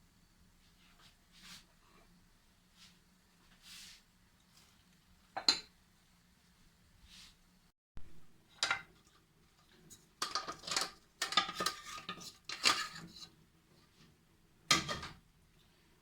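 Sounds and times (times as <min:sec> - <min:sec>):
metal utensils clinking and scraping: 0:08.6 - 0:13.3.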